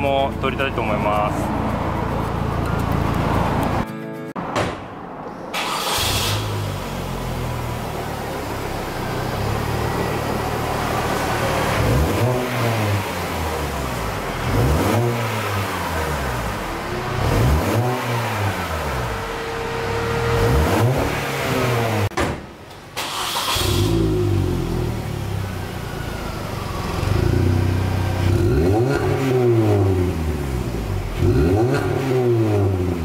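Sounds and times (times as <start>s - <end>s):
car engine idling: 5.6s - 22.1s
engine revving with throttle blips: 5.6s - 22.1s, 23.1s - 33.0s.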